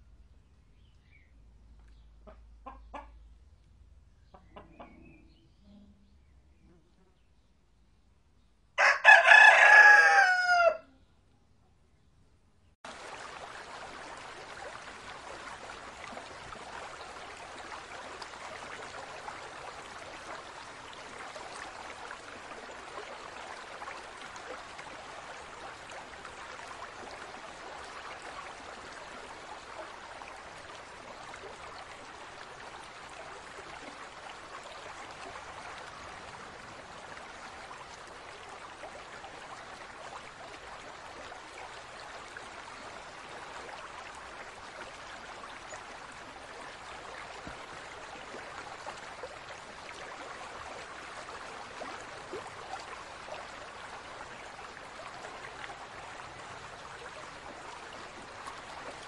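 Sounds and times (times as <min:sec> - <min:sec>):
running aquarium water: 0:08.8 - 0:10.5, 0:12.8 - 0:59.0
rooster crowing: 0:08.8 - 0:10.9.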